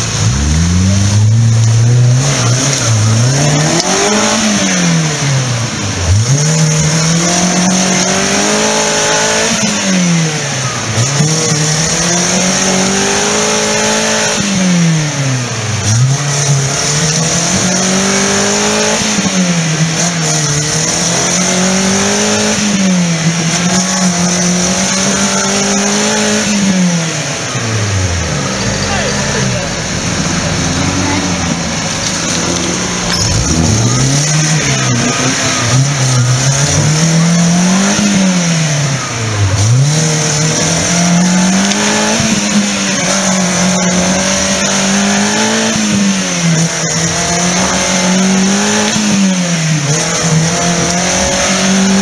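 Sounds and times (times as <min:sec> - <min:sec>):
off-road vehicle engine revving: 0:00.0 - 0:52.0.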